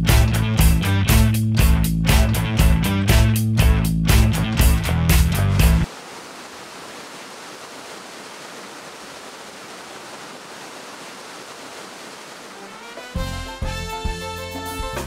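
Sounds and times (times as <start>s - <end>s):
music: 0.0s - 5.9s, 12.7s - 15.0s
steady rushing noise: 5.8s - 12.9s.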